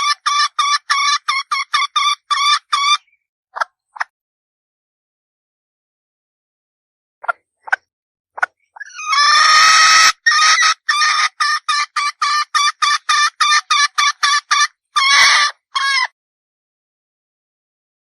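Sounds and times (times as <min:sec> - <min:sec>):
hen clucking: 0:00.0 - 0:04.1, 0:08.4 - 0:16.1.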